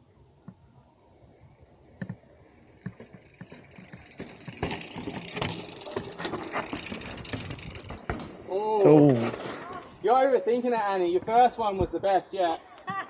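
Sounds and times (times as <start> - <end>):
bike tyres on rocky trail: 1.2 - 13.0
bike drivetrain rattle: 2.0 - 11.9.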